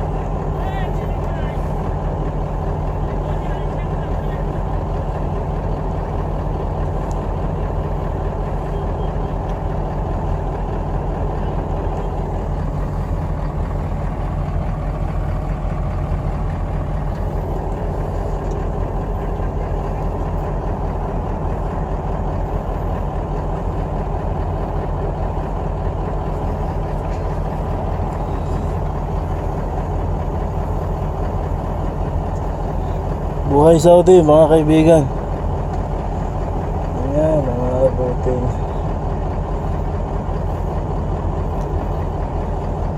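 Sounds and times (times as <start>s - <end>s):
vehicle engine idling: 0.0s - 42.9s.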